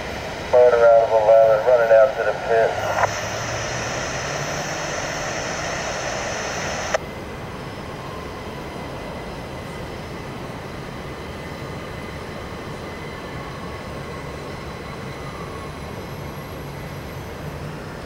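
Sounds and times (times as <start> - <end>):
distant train rumble: 0.0 - 7.2
steady hiss: 0.5 - 7.0.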